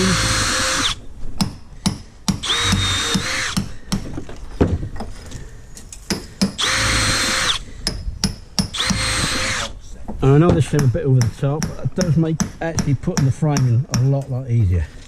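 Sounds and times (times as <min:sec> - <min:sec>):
cordless drill running: 0:00.0 - 0:01.0, 0:02.4 - 0:03.6, 0:06.6 - 0:07.6, 0:08.8 - 0:09.7
wood handling knocks and clicks: 0:03.6 - 0:06.6.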